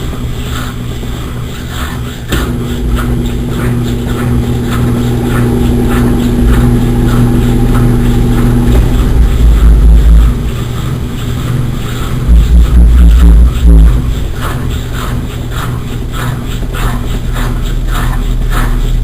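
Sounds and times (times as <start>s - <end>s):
washing machine running: 0.0s - 19.0s
low rumble: 2.3s - 16.2s.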